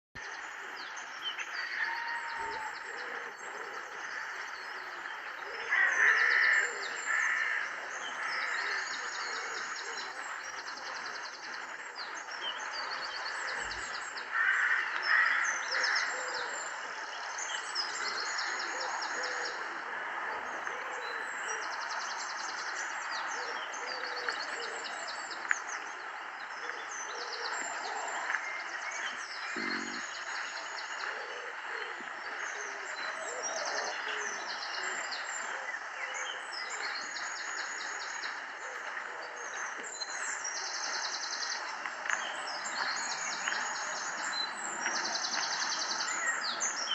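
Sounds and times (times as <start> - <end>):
birds chirping and trilling: 0.2 - 46.9.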